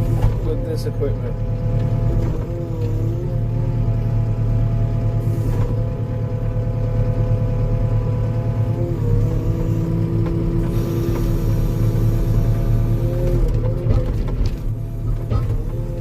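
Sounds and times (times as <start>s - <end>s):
diesel engine running: 0.0s - 16.0s
whining hydraulic tone: 8.7s - 14.0s.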